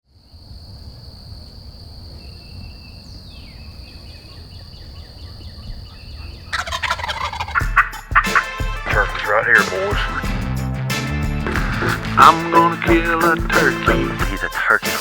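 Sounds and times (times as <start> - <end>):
turkey gobbling: 5.6 - 7.9.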